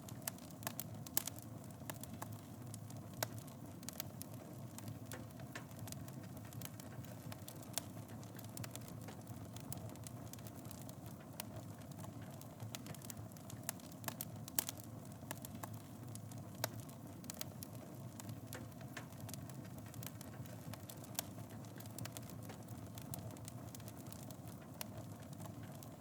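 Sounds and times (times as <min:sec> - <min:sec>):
fire crackling and popping: 0:00.0 - 0:26.0
flames rumbling: 0:00.0 - 0:26.0.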